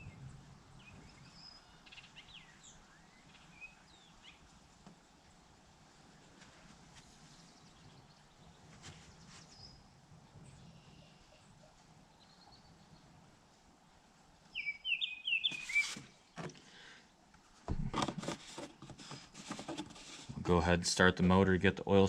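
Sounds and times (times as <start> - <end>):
bird chirping: 0.0 - 4.5, 7.3 - 13.2, 14.5 - 16.4
handling knocks and rustles: 17.6 - 20.5.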